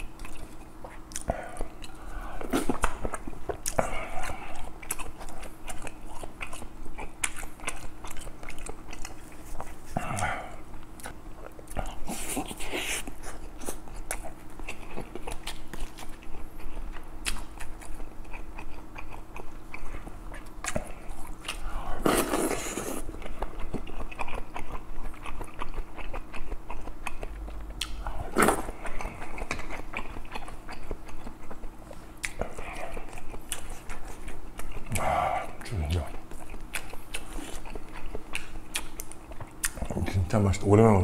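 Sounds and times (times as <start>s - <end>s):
person chewing: 0.0s - 40.4s
person slurping stew: 21.9s - 23.0s.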